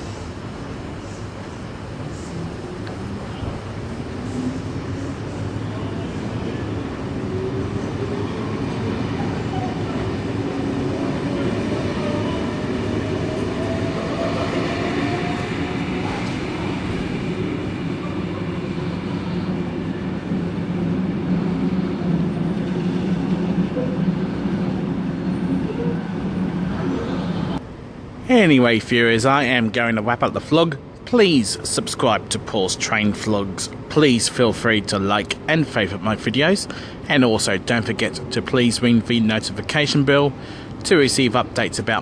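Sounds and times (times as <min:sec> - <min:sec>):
electric train rumble: 0:00.0 - 0:28.2
train whine rising in pitch: 0:07.1 - 0:27.6.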